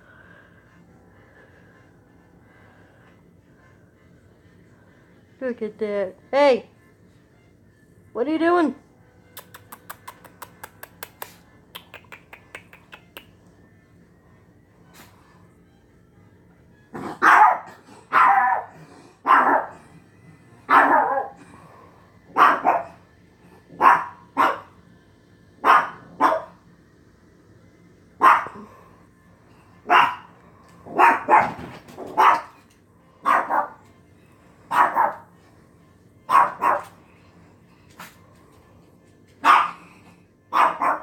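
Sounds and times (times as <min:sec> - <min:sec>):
dog barking: 0:17.1 - 0:19.8, 0:20.7 - 0:21.4, 0:22.3 - 0:23.0, 0:23.7 - 0:24.8, 0:25.6 - 0:26.6, 0:28.2 - 0:28.7, 0:29.9 - 0:30.3, 0:30.9 - 0:32.6, 0:33.2 - 0:33.8, 0:34.7 - 0:35.3, 0:36.3 - 0:37.0, 0:39.4 - 0:39.8, 0:40.5 - 0:41.0.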